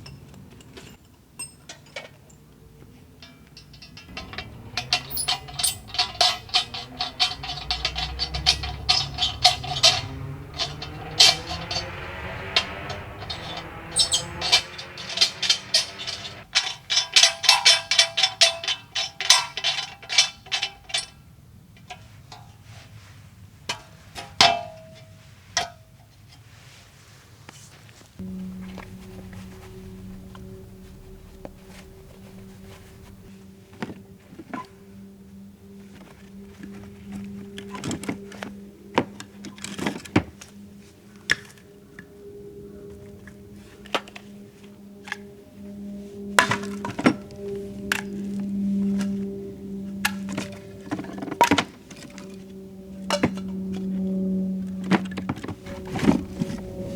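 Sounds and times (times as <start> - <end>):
sharp metallic clanking: 3.2 - 21.1, 28.2 - 33.4
steady low hum: 3.5 - 16.4, 28.2 - 56.9.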